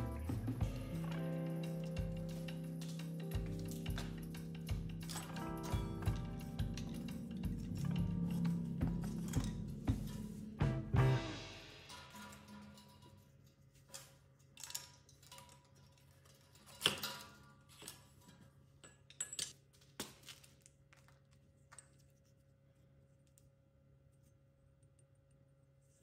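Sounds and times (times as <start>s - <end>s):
metal tools clinking: 0.9s - 10.4s, 11.8s - 20.4s.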